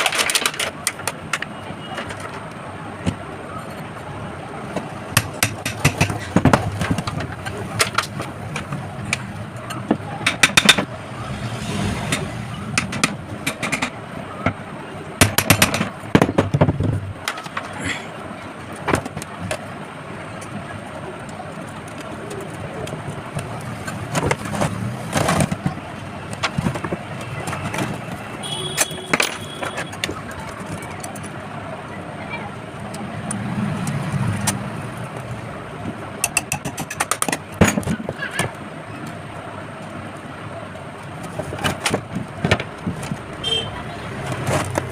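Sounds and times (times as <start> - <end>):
low background noise: 0.0 - 44.9
sharp clicks and knocks: 4.6 - 17.8, 18.6 - 31.5, 32.9 - 39.2, 41.0 - 44.9
irregular clicks and knocks: 4.7 - 11.0, 12.1 - 17.8, 33.3 - 39.2.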